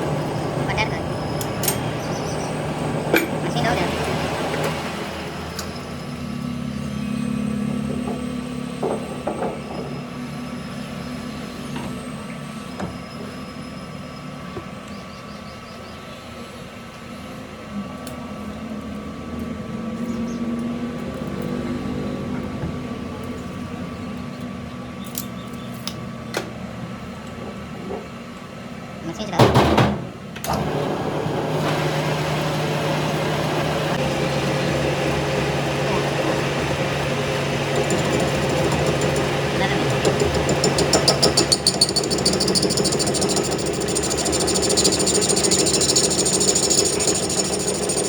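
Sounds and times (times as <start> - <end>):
engine humming: 30.5 - 48.0.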